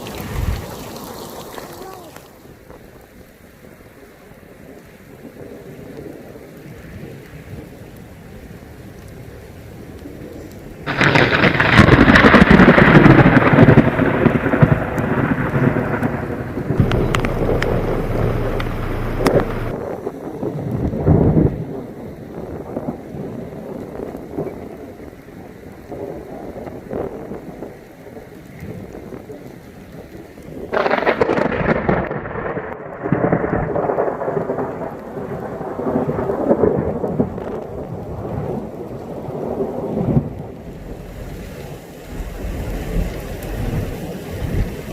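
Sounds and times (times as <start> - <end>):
steady rain: 0.0 - 44.9
raindrop ticks: 3.8 - 19.8, 25.8 - 44.9
thunder rolling: 10.2 - 24.2, 30.7 - 44.9.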